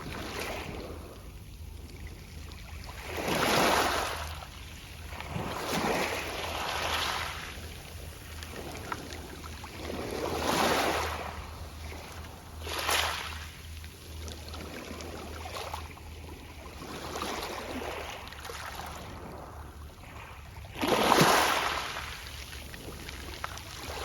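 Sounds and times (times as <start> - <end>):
waves washing onto pebbles: 0.0 - 1.2, 2.8 - 15.9, 20.0 - 24.0.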